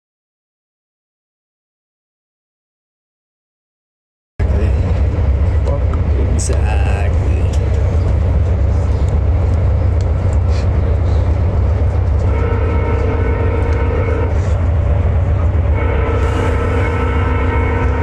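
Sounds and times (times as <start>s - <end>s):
train rumbling: 4.4s - 18.0s
train horn chord: 12.2s - 14.7s, 15.6s - 18.0s.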